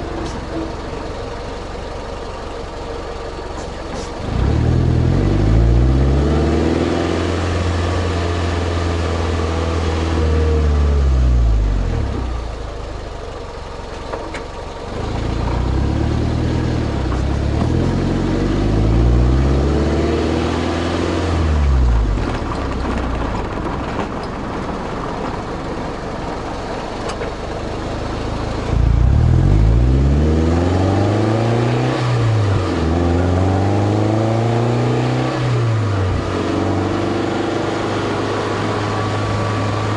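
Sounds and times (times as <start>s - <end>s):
car engine revving through exhaust: 4.0s - 12.4s, 14.9s - 22.4s, 28.2s - 39.9s.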